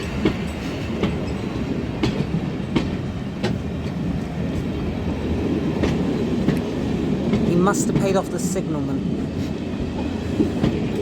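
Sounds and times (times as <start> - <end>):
train wheels clicking over rail joints: 0.0 - 4.8, 5.7 - 8.2, 9.8 - 11.0.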